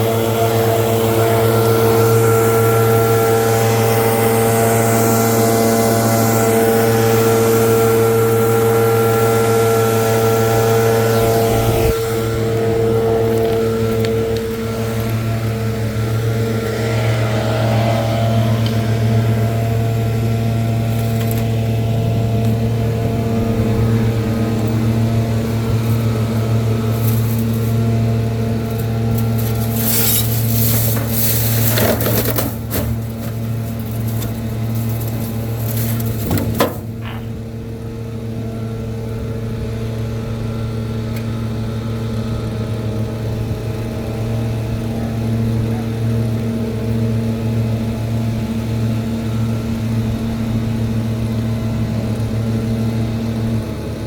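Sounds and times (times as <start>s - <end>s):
rushing blast of air: 0.0s - 15.8s
leaf blower engine running: 0.0s - 54.0s.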